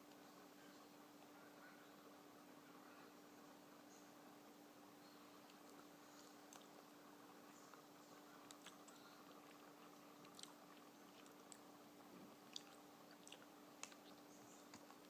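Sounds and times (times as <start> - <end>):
steady low hum: 0.0 - 15.0
chewing food: 5.4 - 15.0.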